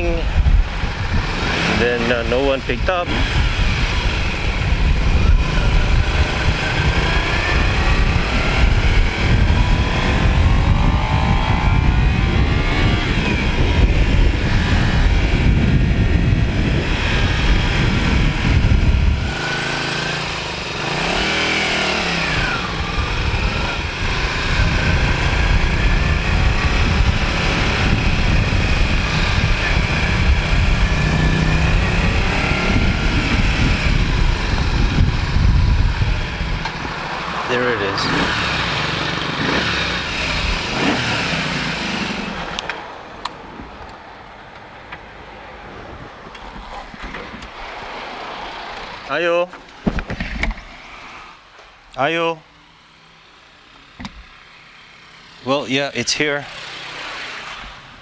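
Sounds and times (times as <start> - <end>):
wind rumble on microphone: 0.0 - 42.7
motorcycle engine: 0.0 - 44.1, 51.4 - 58.0.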